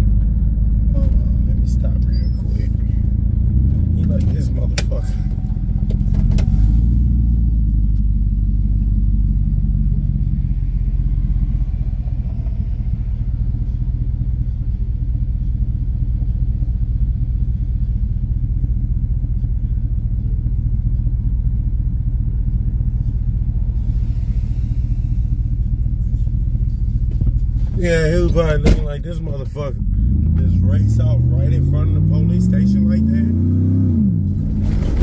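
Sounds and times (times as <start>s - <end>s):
car engine idling: 0.0s - 33.3s.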